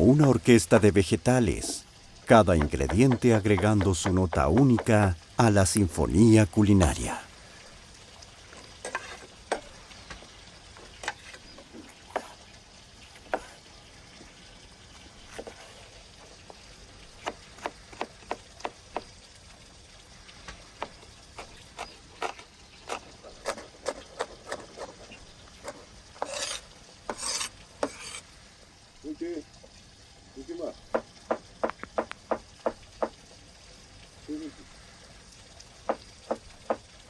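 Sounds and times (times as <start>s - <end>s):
faint steady hiss: 0.0s - 37.0s
utensils scraping: 8.6s - 9.8s, 10.8s - 13.6s, 21.4s - 28.3s.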